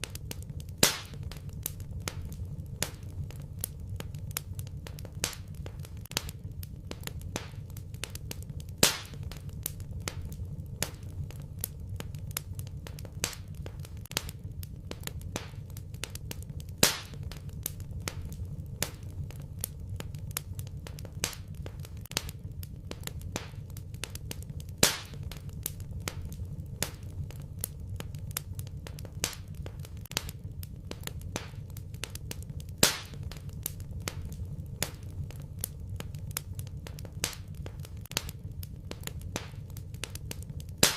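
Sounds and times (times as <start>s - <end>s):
low fire rumble: 0.0s - 40.9s
wood fire crackling: 0.0s - 40.9s
loud fire pop: 0.8s - 3.0s, 8.8s - 9.4s, 16.8s - 17.2s, 24.8s - 25.2s, 32.8s - 35.1s.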